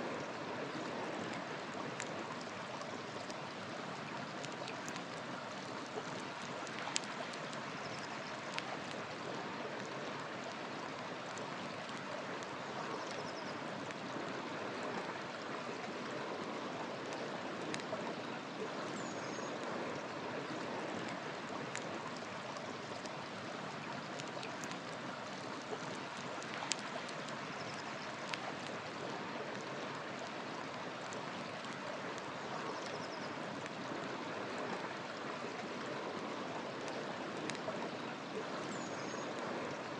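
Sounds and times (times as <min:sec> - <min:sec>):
river water flowing: 0:00.0 - 0:39.9
wood fire popping: 0:26.4 - 0:27.4.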